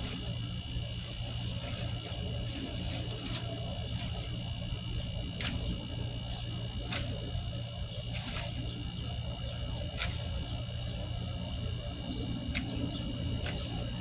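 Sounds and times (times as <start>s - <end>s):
steady low rumble: 0.0s - 14.0s
tree limbs snapping: 5.3s - 5.8s, 9.9s - 10.4s, 12.5s - 13.9s.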